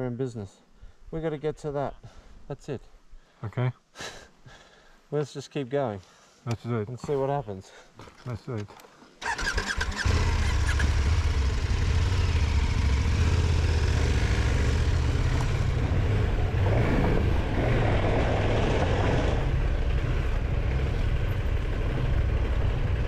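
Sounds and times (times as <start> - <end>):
motorcycle engine running: 9.9 - 16.7, 18.4 - 23.0.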